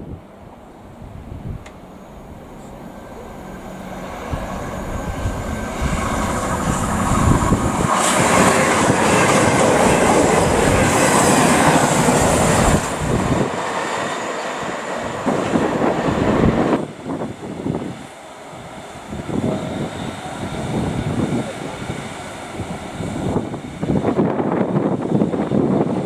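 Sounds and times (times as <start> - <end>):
diesel train passing: 0.0 - 26.0.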